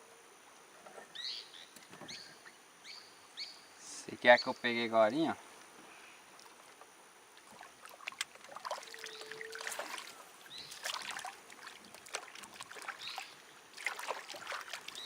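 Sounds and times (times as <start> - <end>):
water splashing: 6.4 - 15.0.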